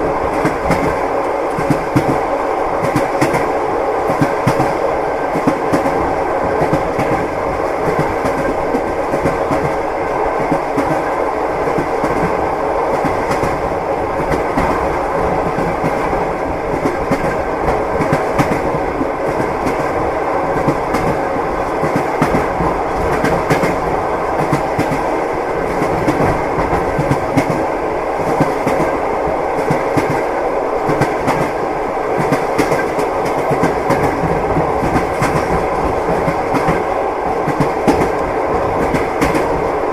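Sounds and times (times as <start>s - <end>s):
rumble of moving carriage: 0.0s - 29.0s, 29.6s - 39.8s
train wheels clattering over rail joints: 32.2s - 39.7s.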